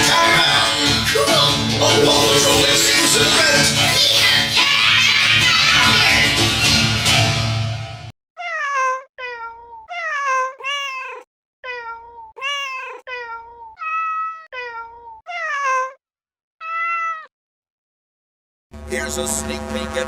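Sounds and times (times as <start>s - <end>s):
cat meowing: 8.4s - 16.0s, 16.6s - 17.3s.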